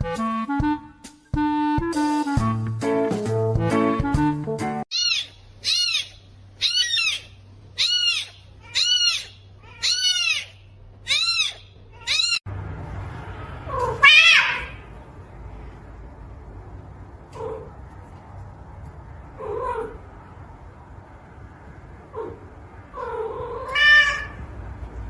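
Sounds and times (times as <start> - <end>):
cat meowing: 4.9 - 12.4, 13.7 - 14.8, 22.2 - 24.4.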